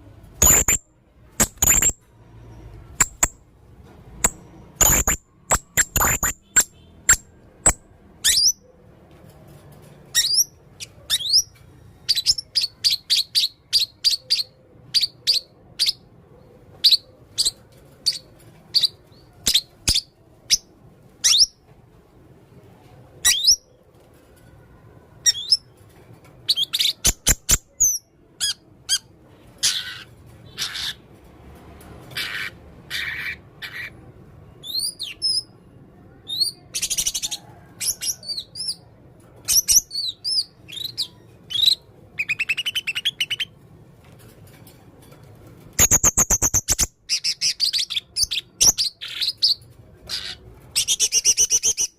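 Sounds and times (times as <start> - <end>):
parrot chirping: 0.4 - 0.8, 1.4 - 2.0, 2.9 - 3.4, 4.2 - 8.6, 10.1 - 16.1, 16.8 - 21.6, 39.5 - 43.6, 45.8 - 51.9.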